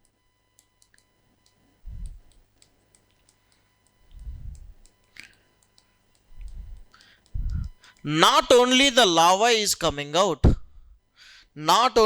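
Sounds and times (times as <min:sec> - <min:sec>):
light clicks and taps: 0:00.6 - 0:08.0
dull low thumps: 0:01.9 - 0:02.3, 0:04.1 - 0:04.8, 0:06.3 - 0:07.8.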